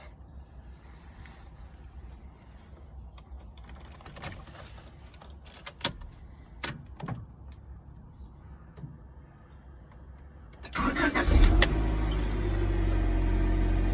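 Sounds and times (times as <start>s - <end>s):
keys and controls clicking: 5.1s - 7.7s.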